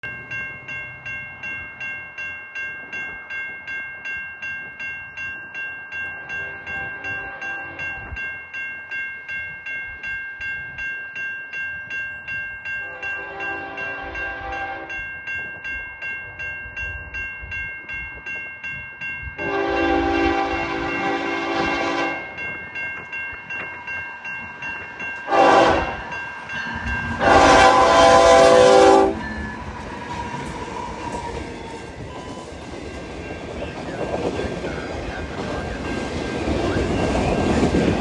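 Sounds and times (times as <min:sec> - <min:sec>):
crossing bell dinging: 0:00.0 - 0:38.0
locomotive horn: 0:12.8 - 0:14.9, 0:19.4 - 0:22.3, 0:25.3 - 0:26.0, 0:27.2 - 0:29.2.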